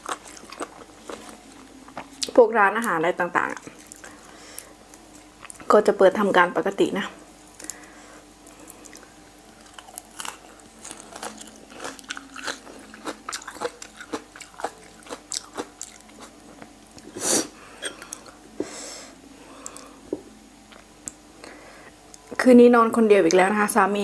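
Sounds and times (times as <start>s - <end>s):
chewing crunchy cartilage: 0.0s - 2.4s, 3.4s - 5.7s, 7.5s - 17.1s.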